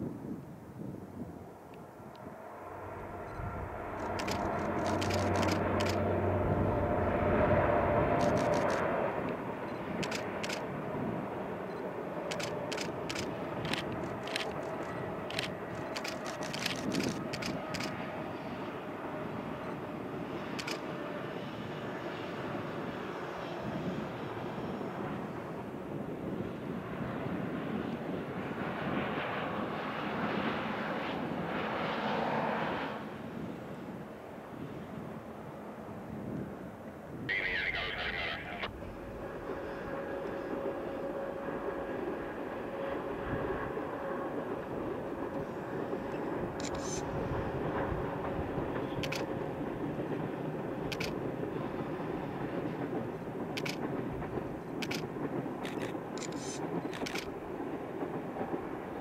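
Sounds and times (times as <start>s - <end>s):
train rumbling over bridge: 1.8s - 21.2s, 38.6s - 59.0s
camera shutter clicks: 3.9s - 6.0s, 8.2s - 8.8s, 10.0s - 10.6s, 12.3s - 17.9s, 20.6s - 20.8s, 46.6s - 47.1s, 53.6s - 53.8s, 55.6s - 57.3s.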